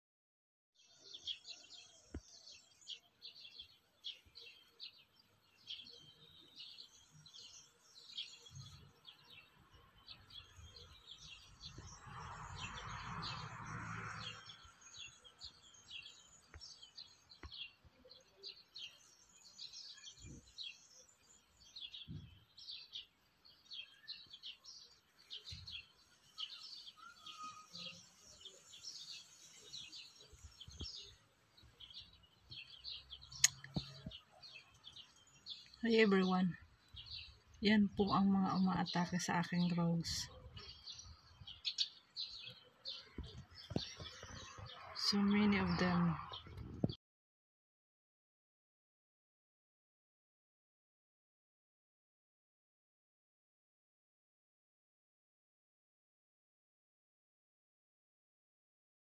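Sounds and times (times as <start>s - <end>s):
songbirds chirping: 0.8s - 47.0s.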